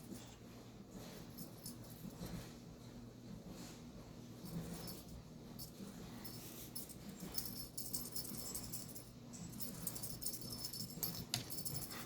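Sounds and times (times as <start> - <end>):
toy jingling and rattling: 4.5 - 12.0.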